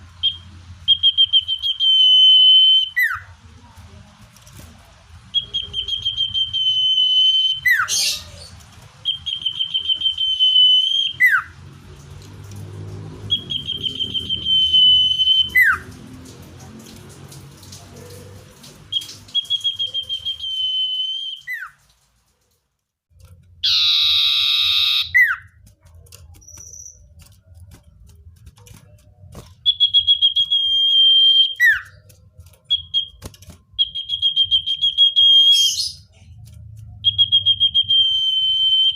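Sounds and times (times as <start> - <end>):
bird trilled whistle song: 0.2 - 3.3, 5.4 - 8.4, 9.0 - 11.5, 13.3 - 15.9, 18.9 - 21.8, 23.6 - 25.5, 26.4 - 27.1, 29.6 - 32.0, 32.7 - 33.2, 33.8 - 36.1, 37.0 - 38.9.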